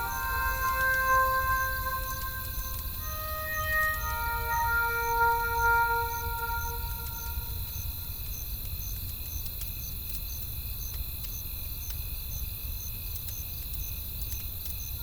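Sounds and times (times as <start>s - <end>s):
insects humming: 0.0s - 9.4s
cricket chirping: 0.0s - 15.0s
low rumble of wind: 0.0s - 15.0s.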